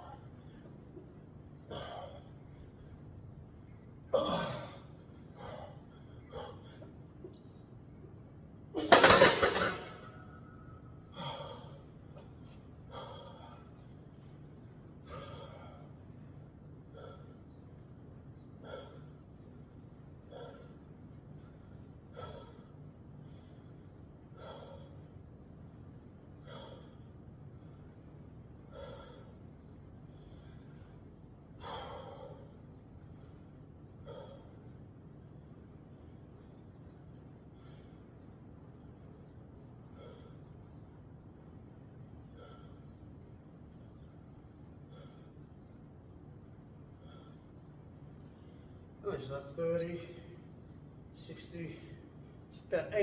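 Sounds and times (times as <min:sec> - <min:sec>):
man breathing hard: 0:11.1 - 0:12.2, 0:12.8 - 0:14.4, 0:15.0 - 0:16.2, 0:20.2 - 0:25.2, 0:26.3 - 0:34.9, 0:37.4 - 0:40.8, 0:42.2 - 0:45.8, 0:46.8 - 0:47.7.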